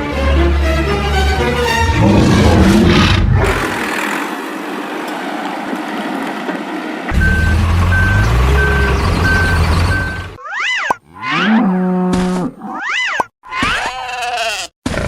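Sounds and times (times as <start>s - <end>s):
music: 0.0s - 2.7s
heavy engine rumble: 1.8s - 10.4s
reversing alarm beeping: 7.1s - 10.4s.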